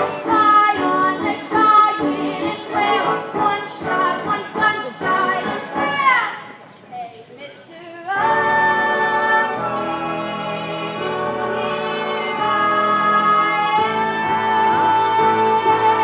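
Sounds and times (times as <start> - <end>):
musical accompaniment: 0.0 - 6.3, 8.1 - 16.0
woman singing long held notes: 11.6 - 16.0.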